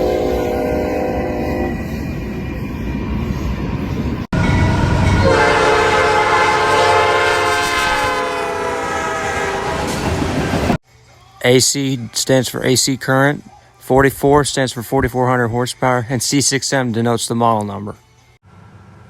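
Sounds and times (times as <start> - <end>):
locomotive air horn chord: 0.0 - 2.4, 4.8 - 10.0
passing train rumble: 0.0 - 10.8, 18.5 - 19.0.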